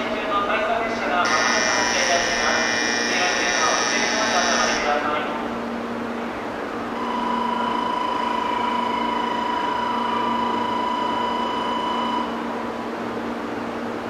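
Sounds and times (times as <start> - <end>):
low steady hum: 0.0 - 14.0
electronic departure buzzer: 1.2 - 5.0, 7.0 - 12.4.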